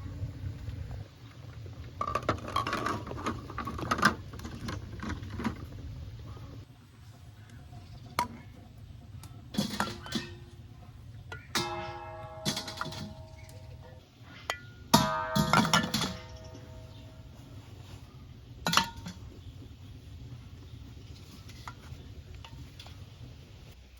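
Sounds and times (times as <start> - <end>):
dishes and utensils clinking: 9.5 - 10.7, 11.3 - 17.1, 18.6 - 19.2.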